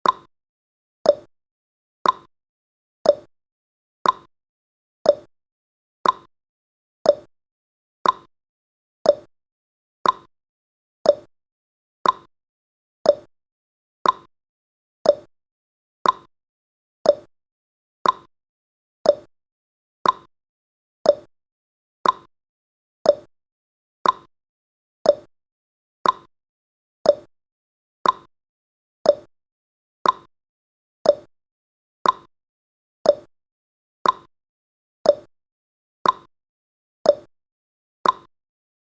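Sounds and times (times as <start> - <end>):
clock ticking: 2.0 - 2.3, 4.0 - 4.3, 6.0 - 6.3, 8.0 - 8.3, 10.0 - 10.3, 12.0 - 12.3, 13.1 - 13.3, 14.0 - 14.3, 15.1 - 15.3, 16.0 - 16.3, 18.0 - 18.3, 20.0 - 20.3, 21.1 - 21.3, 22.0 - 22.3, 24.0 - 24.3, 26.0 - 26.3, 28.0 - 28.3, 29.1 - 29.3, 30.0 - 30.3, 31.1 - 31.3, 32.0 - 32.3, 33.1 - 33.3, 34.0 - 34.3, 35.1 - 35.3, 36.0 - 36.3, 38.0 - 38.3.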